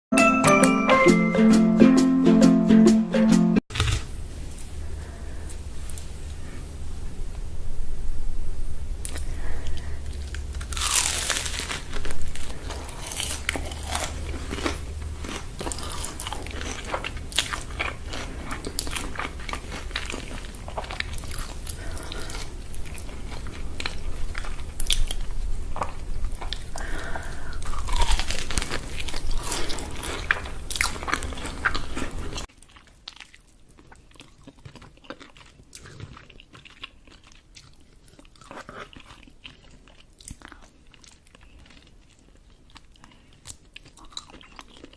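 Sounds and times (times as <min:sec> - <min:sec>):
crunchy food being chewed: 0:09.0 - 0:44.9.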